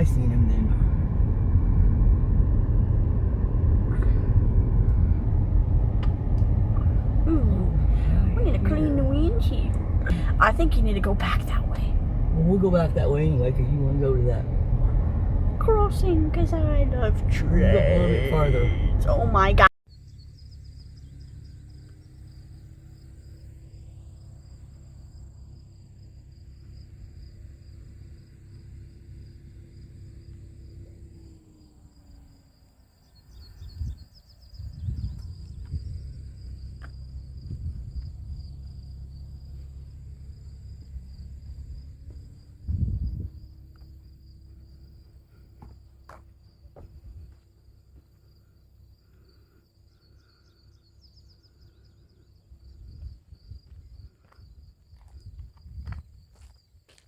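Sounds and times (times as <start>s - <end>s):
low rumble: 0.0s - 32.2s, 33.4s - 45.5s
insects trilling: 18.0s - 57.0s.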